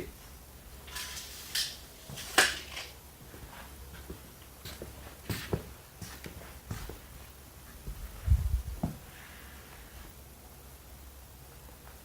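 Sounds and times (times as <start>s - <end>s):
faint steady hiss: 0.0s - 12.0s
low hum: 7.9s - 11.8s.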